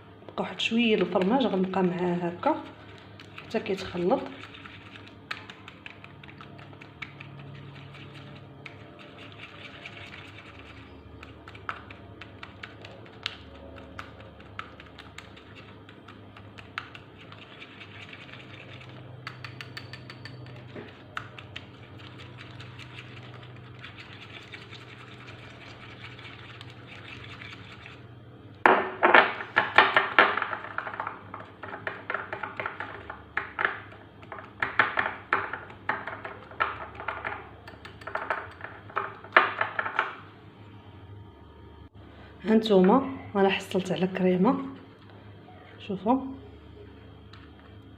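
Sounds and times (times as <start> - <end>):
spoon stirring thick cream: 0.8 - 28.1
utensil clicking against bowl: 2.9 - 28.0, 37.6 - 38.7.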